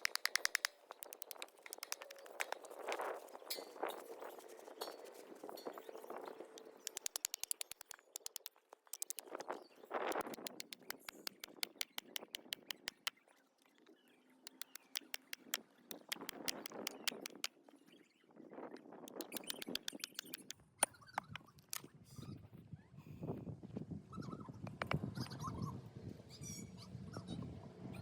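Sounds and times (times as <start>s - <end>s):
campfire crackling and popping: 0.0s - 2.8s, 10.1s - 13.1s, 14.5s - 17.5s, 19.1s - 20.5s.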